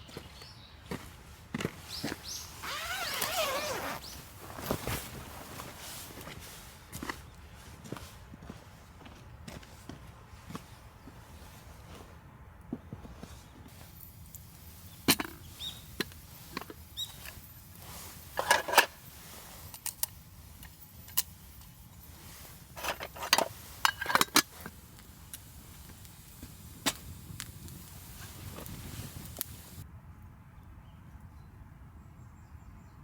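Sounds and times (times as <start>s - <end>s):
faint steady hiss: 1.9s - 7.1s, 13.6s - 29.9s
campfire crackling and popping: 22.2s - 29.8s.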